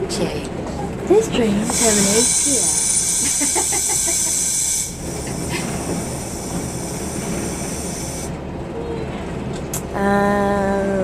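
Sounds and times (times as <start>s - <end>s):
train low rumble: 0.0s - 11.0s
loud high-pitched hiss: 1.7s - 8.4s.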